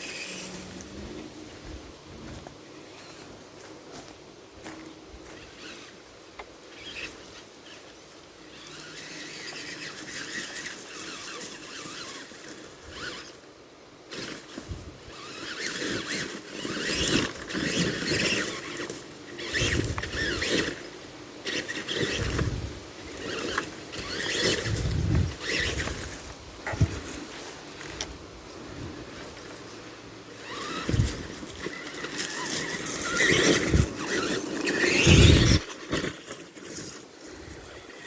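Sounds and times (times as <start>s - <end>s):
toy truck motor whining: 0.0s - 1.2s, 5.3s - 13.5s, 14.1s - 38.0s
tyres crunching through sticks: 0.0s - 13.4s, 14.1s - 38.0s
heavy bumps and thuds: 24.6s - 27.1s.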